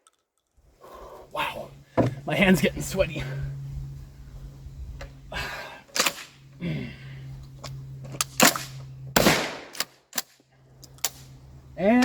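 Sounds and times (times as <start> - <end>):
shotgun shots: 8.4 - 10.0.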